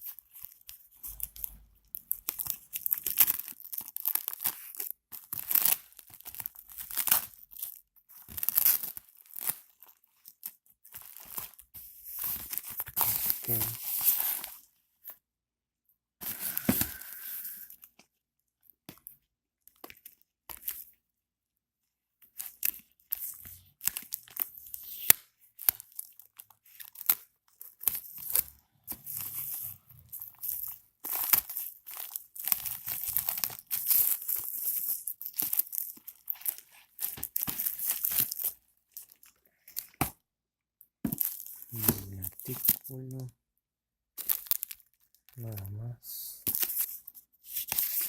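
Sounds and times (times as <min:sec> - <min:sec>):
packaging tearing and crinkling: 0:00.2 - 0:10.3, 0:12.2 - 0:14.6, 0:22.4 - 0:40.0, 0:41.2 - 0:43.0, 0:44.2 - 0:45.7.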